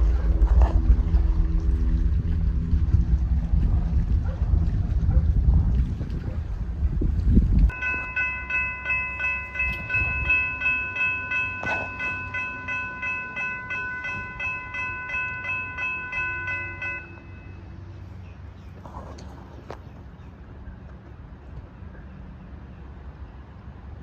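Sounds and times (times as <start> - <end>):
low rumble: 0.0 - 18.2
railroad bell ringing: 7.7 - 18.0.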